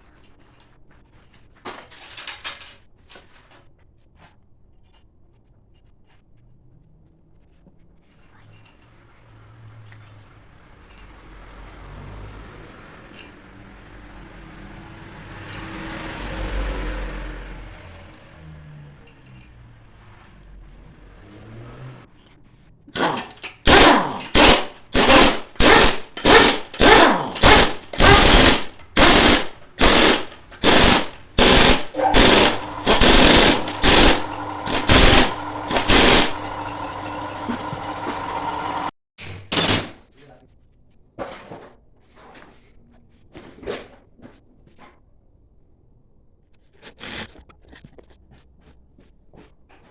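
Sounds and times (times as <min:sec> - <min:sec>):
compressed-air tool bursts: 0:23.7 - 0:38.9.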